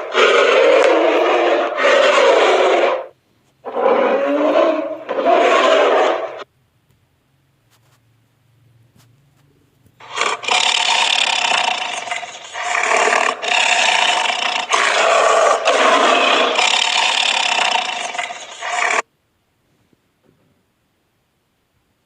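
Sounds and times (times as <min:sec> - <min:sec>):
harsh animal call: 0:00.0 - 0:06.5, 0:10.0 - 0:19.0.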